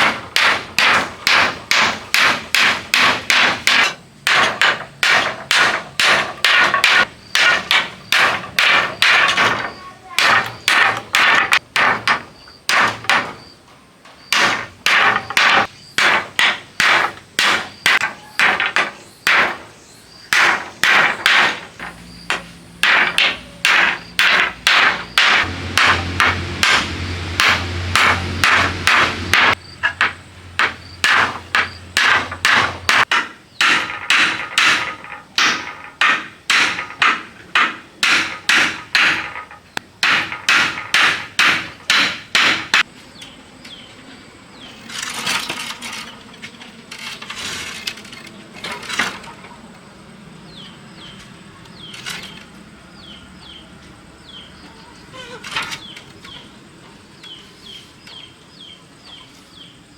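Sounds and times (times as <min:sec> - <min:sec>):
hammering: 0:00.0 - 0:42.9
scraping or rustling: 0:44.7 - 0:49.6, 0:51.8 - 0:52.6, 0:55.1 - 0:56.4.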